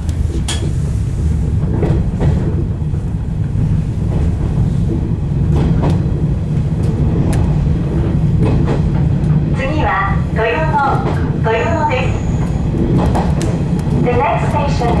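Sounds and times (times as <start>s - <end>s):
electric train rumbling: 0.0s - 15.0s
wheels clicking over rail joints: 12.4s - 15.0s.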